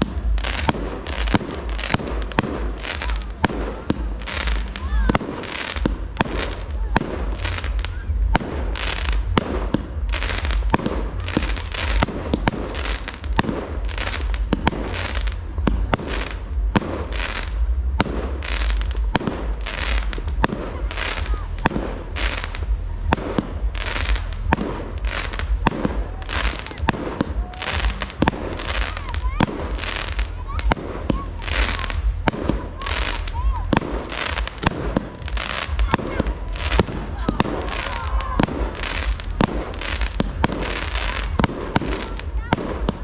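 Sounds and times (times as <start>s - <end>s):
fireworks bangs and crackles: 0.0s - 43.0s
low rumble: 0.0s - 43.0s.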